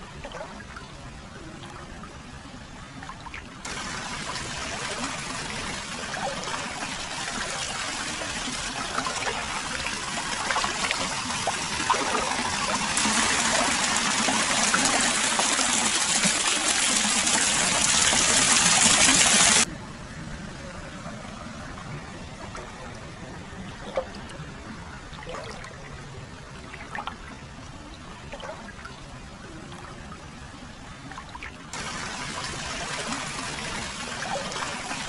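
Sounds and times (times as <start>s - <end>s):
water pouring and splashing: 3.0s - 19.7s, 25.1s - 25.9s, 26.6s - 27.4s, 28.3s - 28.9s, 31.1s - 35.0s.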